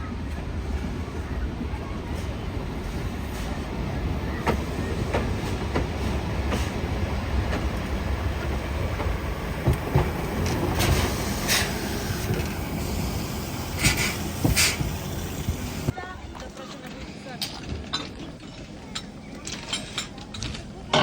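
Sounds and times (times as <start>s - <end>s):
train wheels rumbling on rails: 0.0s - 16.0s
sharp clacks of train wheels: 1.6s - 15.9s.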